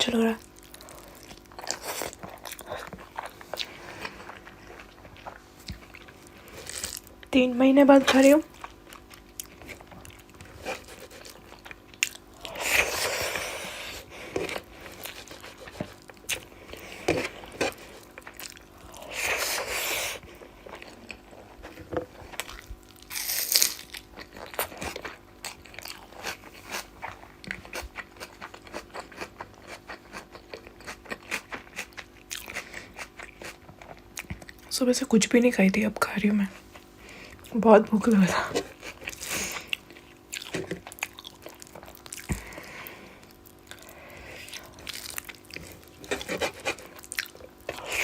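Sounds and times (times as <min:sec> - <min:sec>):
crunching while eating: 0:00.0 - 0:07.4, 0:08.0 - 0:34.7, 0:36.5 - 0:48.0
chewing with wet mouth clicks: 0:00.5 - 0:06.3, 0:08.5 - 0:10.5, 0:17.5 - 0:18.8, 0:22.3 - 0:34.7, 0:38.8 - 0:42.6, 0:43.4 - 0:48.0.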